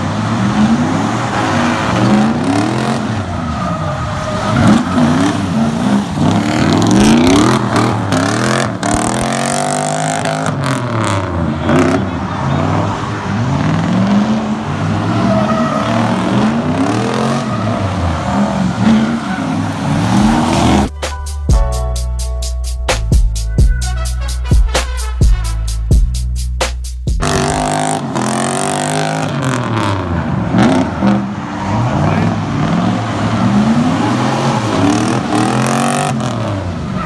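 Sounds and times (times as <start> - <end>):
car engines revving: 0.0 - 21.0, 27.2 - 37.0
music with a steady beat: 20.9 - 27.4.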